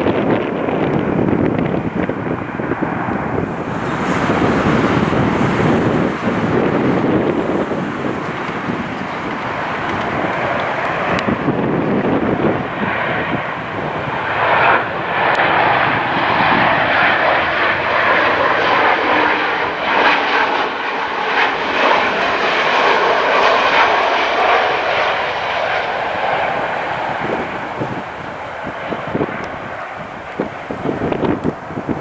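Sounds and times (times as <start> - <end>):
jet airliner engines passing: 0.0 - 32.0.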